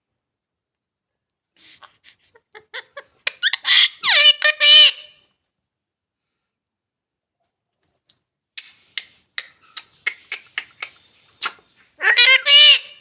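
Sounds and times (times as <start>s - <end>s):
talking parrot call: 3.3s - 5.1s, 9.6s - 13.0s.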